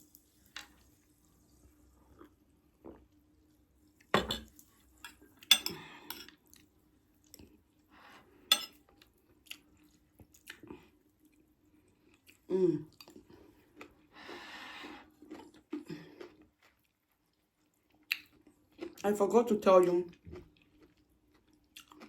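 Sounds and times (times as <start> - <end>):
quiet chewing: 2.0 - 8.0, 8.7 - 19.0, 20.1 - 22.0
cutlery clinking on a plate: 4.2 - 6.3, 8.5 - 8.8.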